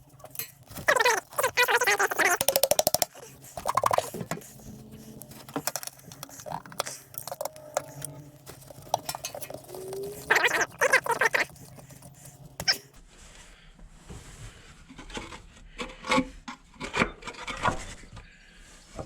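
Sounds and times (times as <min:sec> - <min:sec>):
metal tools clinking: 0:00.1 - 0:12.2.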